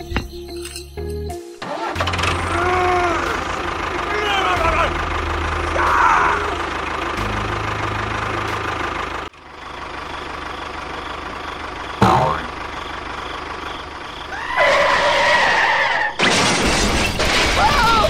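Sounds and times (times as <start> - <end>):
tractor engine: 0.0 - 18.0
pitched tones: 12.0 - 12.6.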